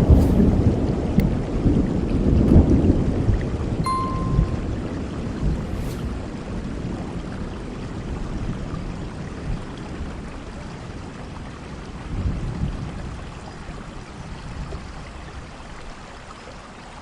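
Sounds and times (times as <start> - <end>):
thunder rumbling: 0.0 - 3.1
steady rain: 0.0 - 3.8, 4.7 - 17.0.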